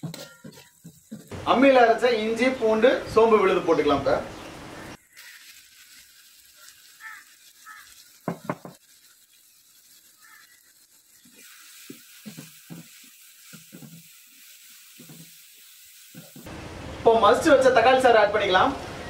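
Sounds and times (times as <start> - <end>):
ladle scraping a pan: 0.0 - 1.4
food frying in a pan: 0.0 - 3.8, 4.9 - 18.3
loud sizzle: 0.0 - 19.0.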